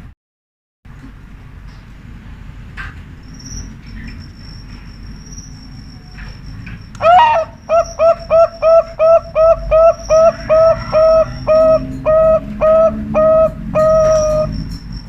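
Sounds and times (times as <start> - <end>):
high thin insect trill: 3.2 - 7.0
dove cooing rapidly: 7.0 - 14.6.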